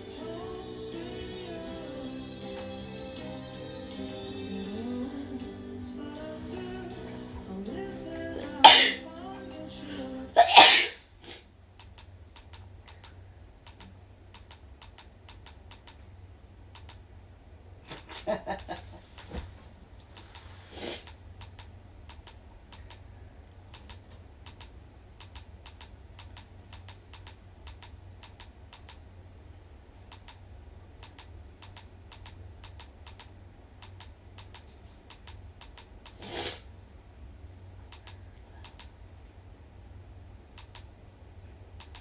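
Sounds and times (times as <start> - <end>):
low steady hum: 0.0 - 42.0
light irregular clicks and taps: 11.8 - 16.1, 16.7 - 17.0, 20.0 - 23.1, 23.7 - 29.0, 30.1 - 30.4, 31.0 - 36.2, 37.9 - 39.0, 40.5 - 40.9, 41.8 - 42.0.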